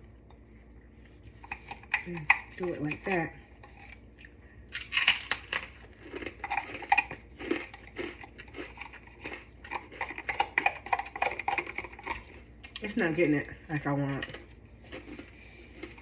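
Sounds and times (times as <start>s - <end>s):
tortilla chips crunching: 3.6s - 16.0s.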